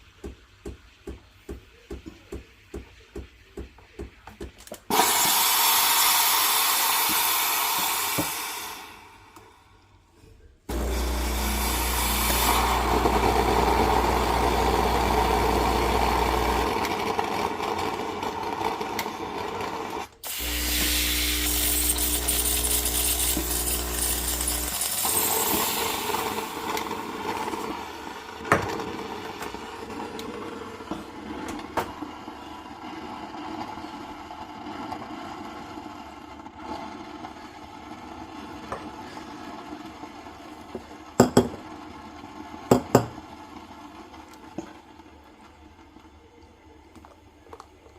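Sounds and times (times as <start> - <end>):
coffee machine buzzing and hissing: 4.9 - 9.8, 10.7 - 41.1.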